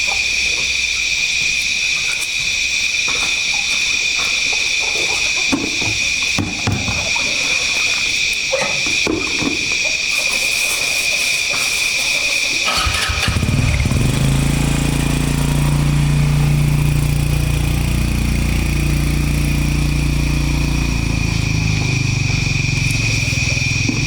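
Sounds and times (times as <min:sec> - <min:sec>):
small engine starting and running: 0:10.0 - 0:24.0.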